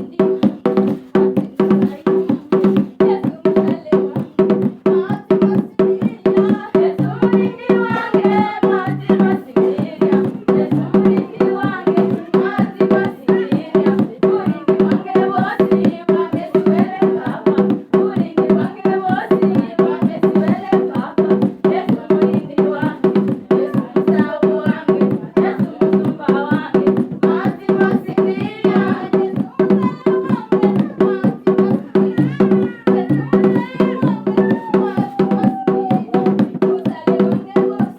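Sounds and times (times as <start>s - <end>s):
drums and hand percussion: 0.0s - 37.9s
voices singing gospel: 0.0s - 37.9s.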